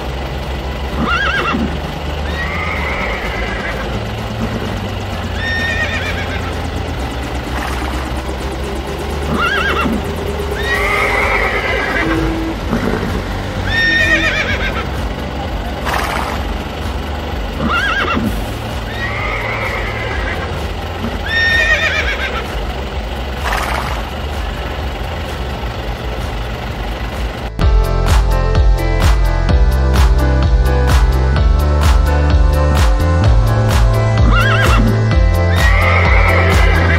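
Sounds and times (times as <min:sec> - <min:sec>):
steady low hum: 0:00.0 - 0:36.9
horse whinnying and neighing: 0:02.3 - 0:03.8, 0:05.4 - 0:06.4, 0:09.3 - 0:10.0, 0:10.6 - 0:14.8, 0:17.6 - 0:18.3, 0:18.9 - 0:20.5, 0:21.3 - 0:22.4, 0:34.2 - 0:36.9.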